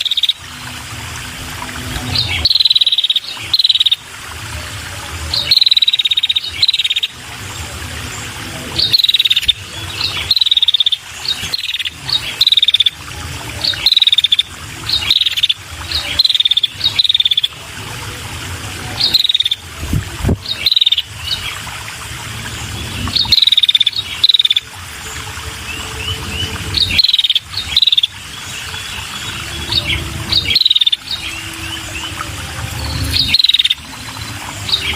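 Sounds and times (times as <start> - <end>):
bird chirping: 2.1 - 4.0, 8.8 - 12.9, 19.0 - 19.6, 20.5 - 21.5, 25.6 - 32.2, 32.8 - 34.9.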